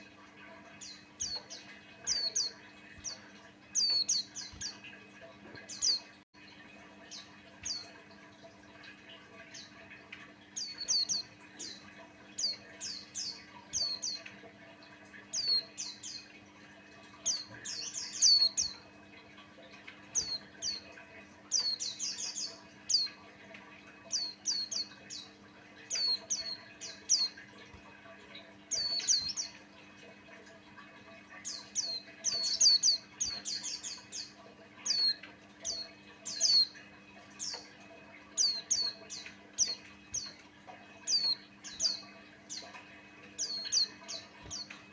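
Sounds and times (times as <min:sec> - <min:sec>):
faint steady hum: 0:00.0 - 0:44.9
bird high chirps: 0:00.8 - 0:04.8, 0:10.6 - 0:11.8, 0:12.4 - 0:14.3, 0:15.3 - 0:16.3, 0:17.2 - 0:18.8, 0:20.1 - 0:20.9, 0:21.5 - 0:23.2, 0:24.1 - 0:27.4, 0:28.7 - 0:29.6, 0:31.4 - 0:36.8, 0:38.3 - 0:40.4, 0:41.0 - 0:42.8, 0:43.4 - 0:44.8.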